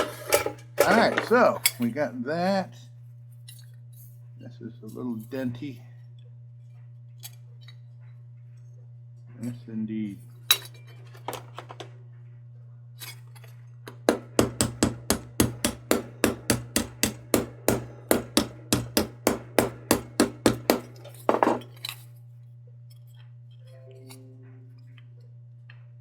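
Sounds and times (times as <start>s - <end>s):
small hammer tapping sheet metal: 13.9s - 21.7s.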